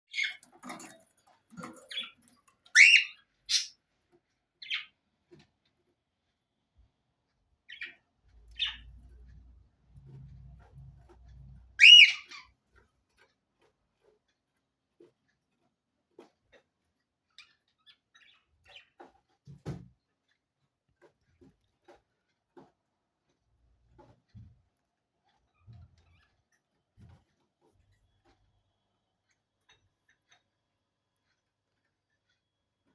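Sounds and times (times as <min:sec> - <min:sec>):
parrot squawking and chirping: 0:01.8 - 0:03.8, 0:08.6 - 0:08.8, 0:11.8 - 0:12.5.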